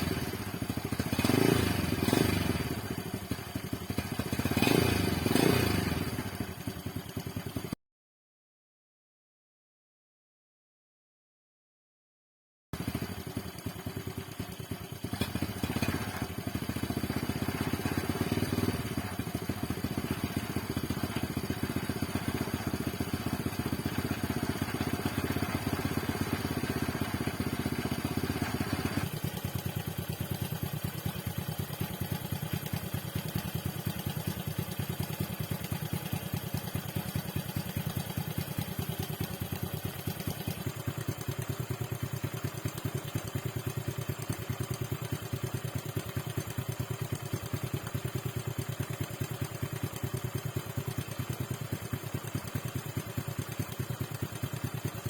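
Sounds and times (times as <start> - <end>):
motorcycle engine revving and idling: 0.0 - 7.8, 12.8 - 55.0.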